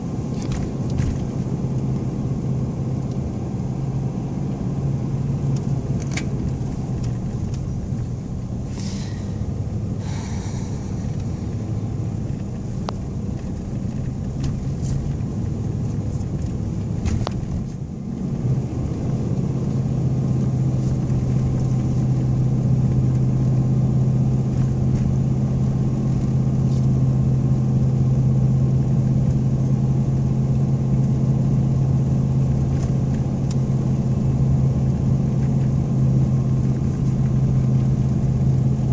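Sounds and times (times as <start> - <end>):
truck driving heard from cab: 0.0 - 38.9.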